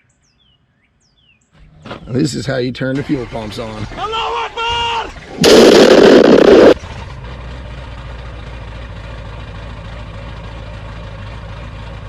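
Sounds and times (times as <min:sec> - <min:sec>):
vehicle engine idling: 0:06.8 - 0:12.0.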